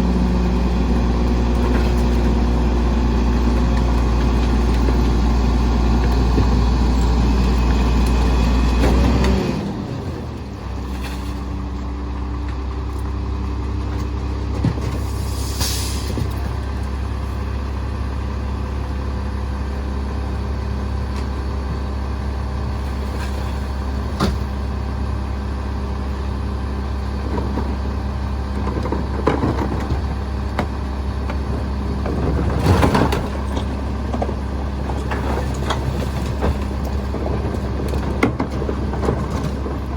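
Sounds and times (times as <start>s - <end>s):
truck diesel engine: 0.0s - 39.9s
knocks and clunks: 28.6s - 39.9s.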